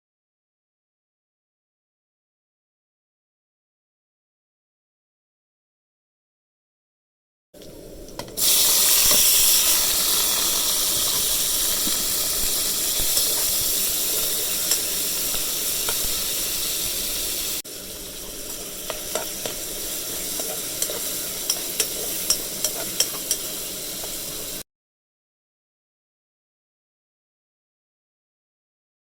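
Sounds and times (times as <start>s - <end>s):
food sizzling in hot oil: 7.6s - 24.6s.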